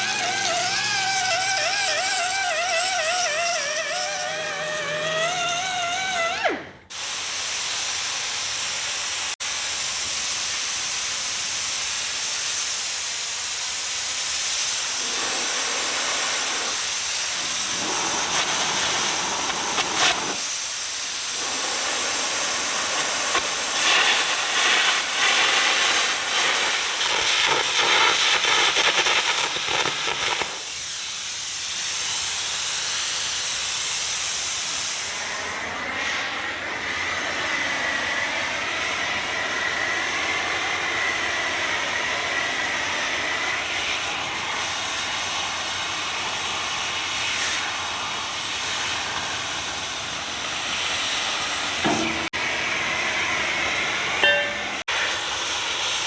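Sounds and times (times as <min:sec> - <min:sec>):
wavering whine: 0:00.0 - 0:06.8
cutting torch hissing: 0:00.0 - 0:56.0.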